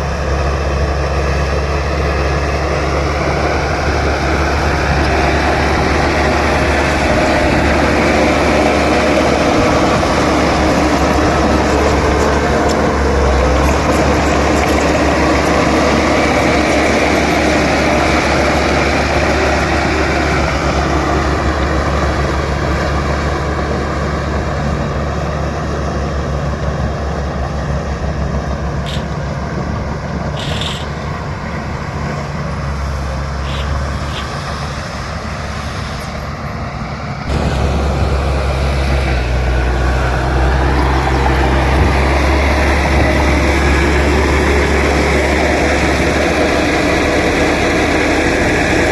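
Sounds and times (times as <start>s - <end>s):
bulldozer diesel engine running: 0.0s - 48.9s.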